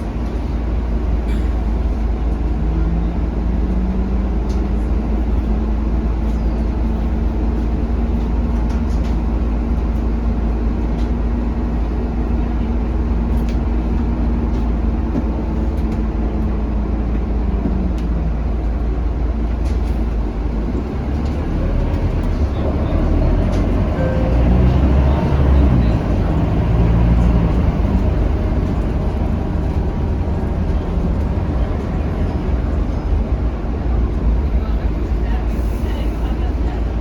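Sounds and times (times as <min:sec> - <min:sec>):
bus diesel engine running: 0:00.0 - 0:37.0
low rumble: 0:13.7 - 0:34.9.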